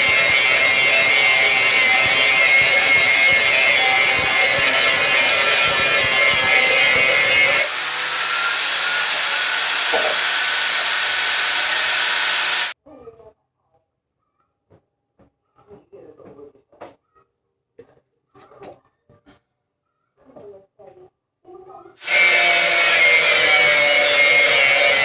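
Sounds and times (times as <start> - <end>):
electric grinder grinding steel: 0.0 - 12.8, 22.0 - 25.0.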